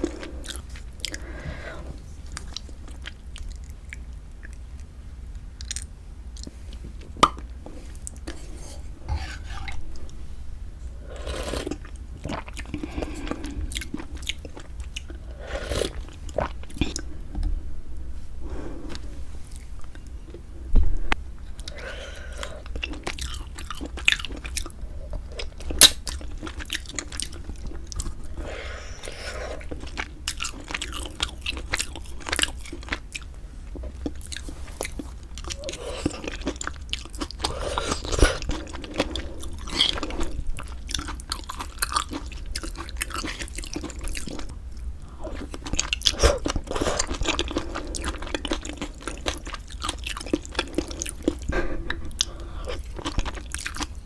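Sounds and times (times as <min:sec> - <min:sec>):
wet chewing: 0:21.6 - 0:54.0.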